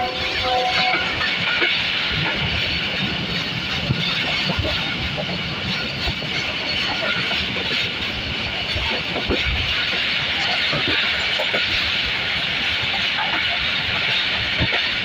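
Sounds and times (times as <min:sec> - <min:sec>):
train rushing hiss: 0:00.0 - 0:15.0
wheels knocking on rails: 0:00.0 - 0:15.0.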